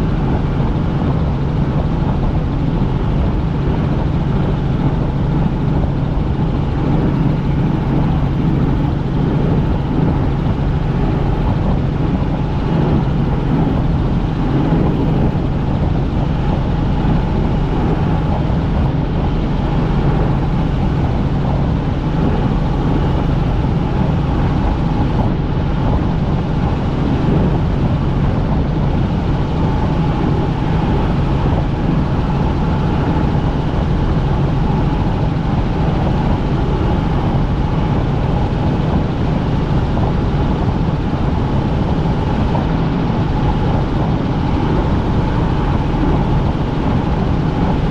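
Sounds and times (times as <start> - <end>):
helicopter engine and rotor noise: 0.0 - 47.9.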